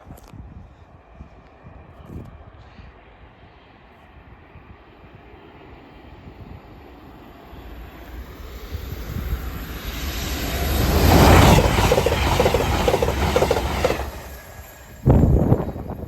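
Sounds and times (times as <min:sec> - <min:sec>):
passenger train passing: 0:04.7 - 0:16.0.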